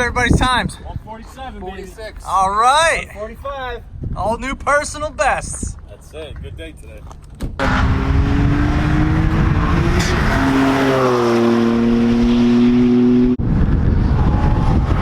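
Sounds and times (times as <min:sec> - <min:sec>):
car engine running hard: 0:07.6 - 0:15.0.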